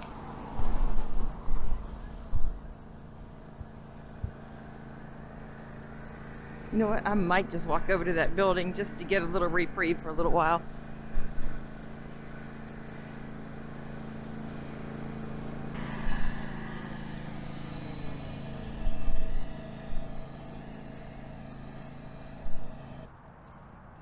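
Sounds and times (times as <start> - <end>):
vehicle engine running: 0.0 - 24.0
rushing swell: 14.6 - 23.1.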